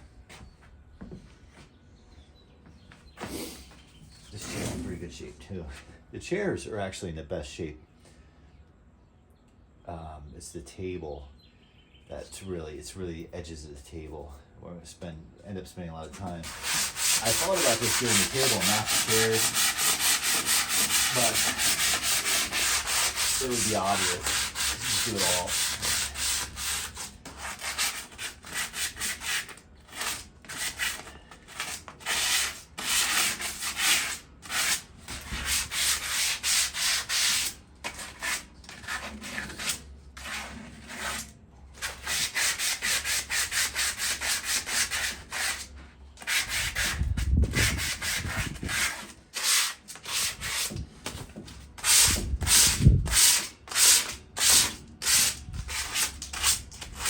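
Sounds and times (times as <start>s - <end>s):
sandpaper rasping on metal: 16.4s - 50.8s, 51.8s - 57.0s.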